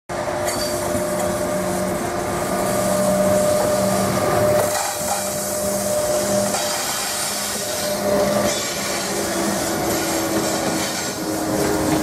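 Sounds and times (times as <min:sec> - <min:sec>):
train running at speed: 0:00.1 - 0:12.0.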